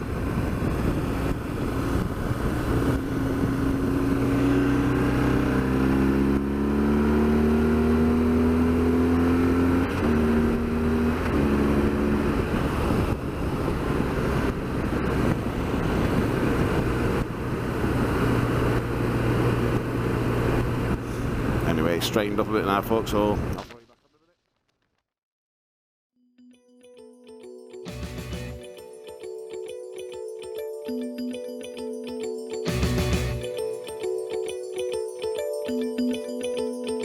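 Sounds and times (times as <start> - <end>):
wind rushing over microphone: 0.0 - 4.7, 11.8 - 21.6
motorcycle engine accelerating: 0.0 - 21.6, 32.7 - 33.5.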